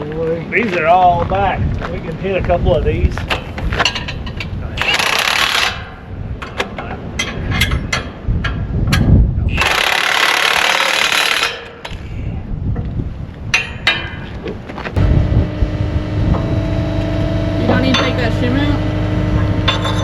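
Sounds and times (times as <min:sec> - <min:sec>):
metal tools knocking and clinking: 0:03.3 - 0:09.8, 0:13.6 - 0:14.3, 0:19.6 - 0:20.0
low rumble: 0:14.3 - 0:20.0.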